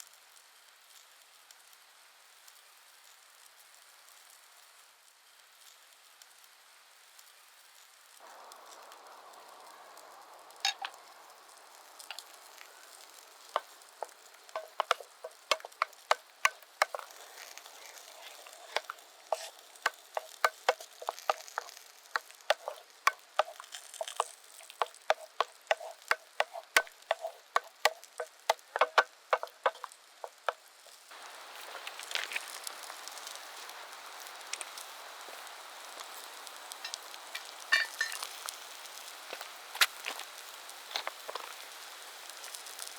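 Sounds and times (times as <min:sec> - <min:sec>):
food sizzling in a pan: 0:00.0 - 0:42.9
utensil clacking against pan: 0:13.6 - 0:30.6.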